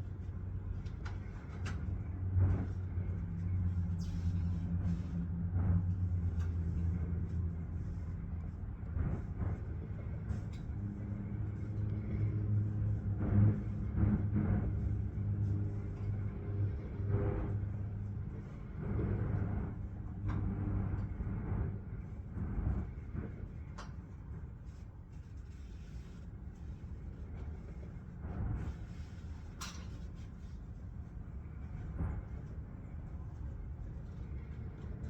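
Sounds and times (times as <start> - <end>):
vehicle engine idling hum: 0.0 - 22.7.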